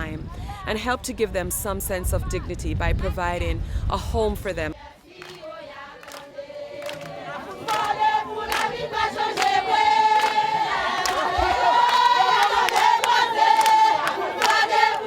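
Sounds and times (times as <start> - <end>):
group of voices singing: 4.7 - 15.0.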